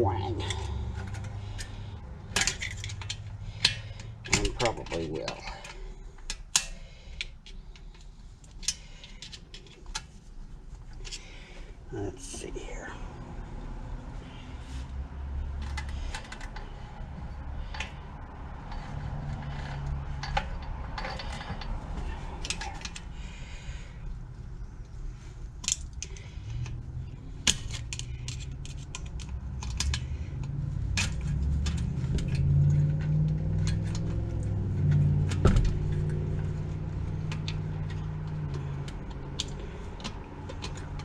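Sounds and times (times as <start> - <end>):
metallic clicks of hand tools: 0.4 - 10.0, 27.4 - 35.4.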